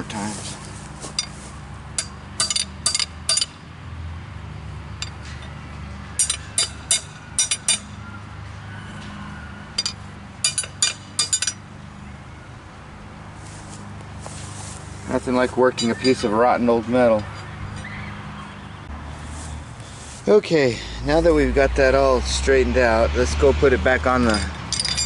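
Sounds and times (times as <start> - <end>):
hammer striking metal rod: 2.0 - 3.6, 6.2 - 7.9, 9.8 - 11.6.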